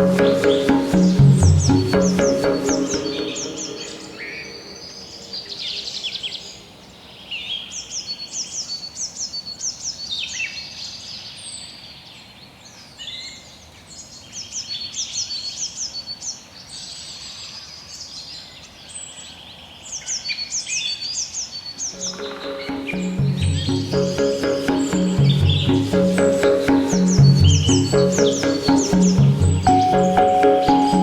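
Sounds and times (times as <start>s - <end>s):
songbirds chirping: 21.4s - 31.0s.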